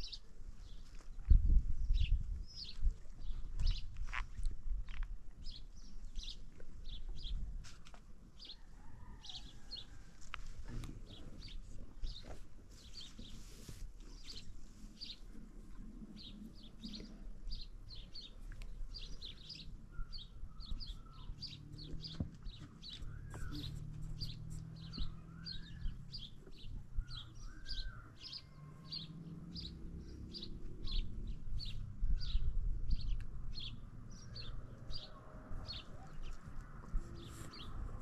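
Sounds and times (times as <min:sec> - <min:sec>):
small bird chirping: 0:16.2 - 0:34.4.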